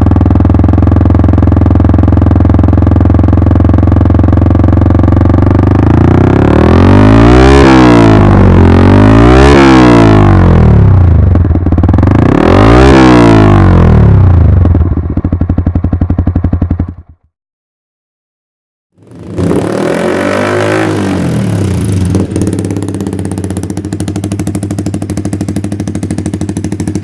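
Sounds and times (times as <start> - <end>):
motorcycle engine revving and idling: 0.0 - 17.3, 19.0 - 27.0.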